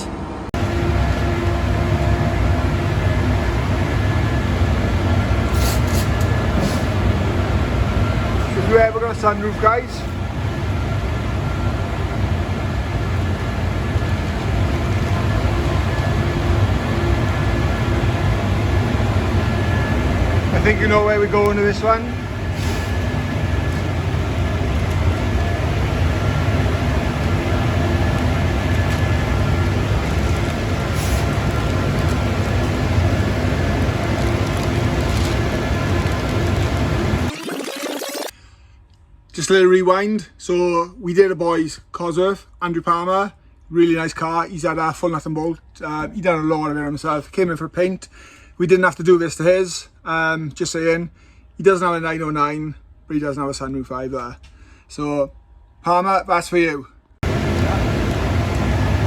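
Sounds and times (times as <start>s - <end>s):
spray booth fans rumbling: 0.6s - 37.3s, 57.2s - 59.0s
brief high hisses: 5.5s - 7.0s.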